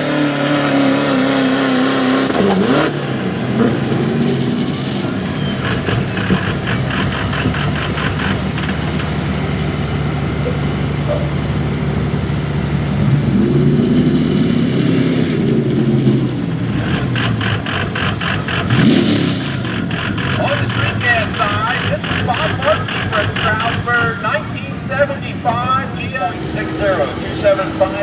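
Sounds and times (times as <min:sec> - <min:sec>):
truck engine running hard: 0:00.0 - 0:28.0
fast rhythmic clatter: 0:16.7 - 0:24.2.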